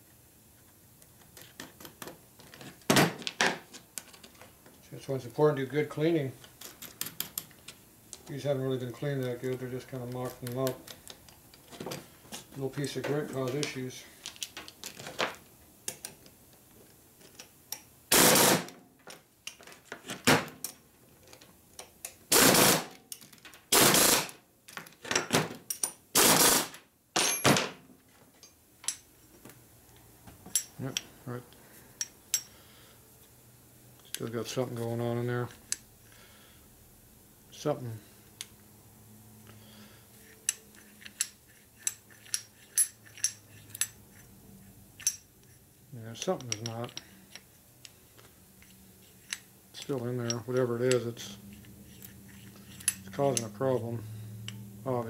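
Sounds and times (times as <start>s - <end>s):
faint steady hum: 0.0s - 55.0s
light metal clicks and taps: 15.8s - 16.6s, 20.6s - 22.2s, 28.4s - 31.1s, 32.0s - 32.5s, 46.2s - 53.6s, 54.4s - 54.7s
light metal clicks: 46.2s - 48.0s.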